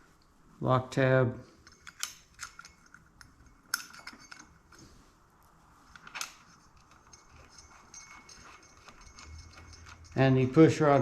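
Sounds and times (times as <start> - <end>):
metal clutch parts clinking: 1.6 - 4.9, 6.0 - 11.0.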